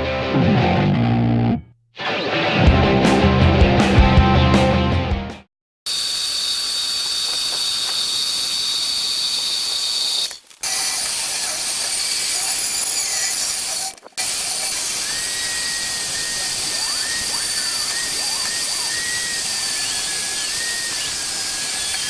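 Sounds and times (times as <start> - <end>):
power tool hissing on metal: 5.9 - 22.0.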